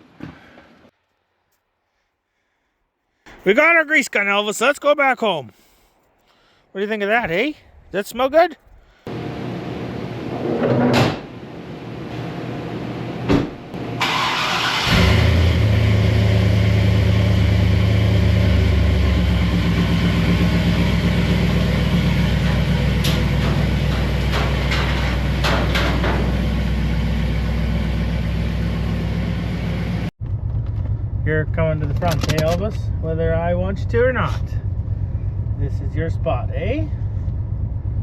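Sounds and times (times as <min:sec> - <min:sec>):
truck engine starting and idling: 0:09.0 - 0:38.0
sharp knocks: 0:22.4 - 0:26.5.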